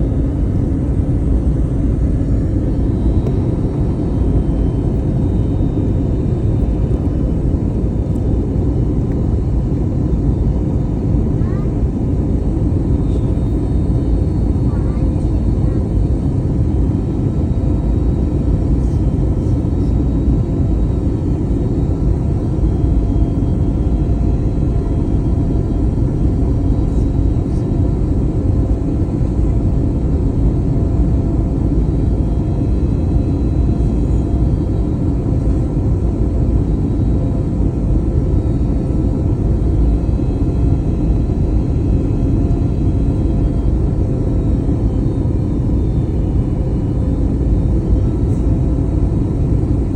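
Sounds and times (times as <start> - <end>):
faint whining tones: 0.0 - 16.0, 17.0 - 49.8
aircraft engines and airflow rumble: 0.0 - 49.9.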